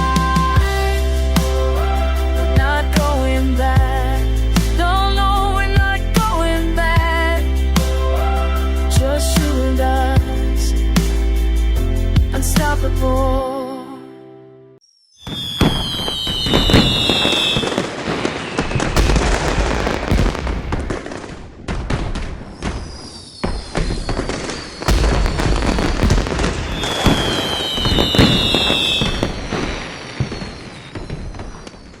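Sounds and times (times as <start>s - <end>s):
firework whistle gliding down: 14.9s - 20.5s, 22.5s - 32.0s
firework crackling: 15.2s - 32.0s
deep firework booms: 15.3s - 32.0s.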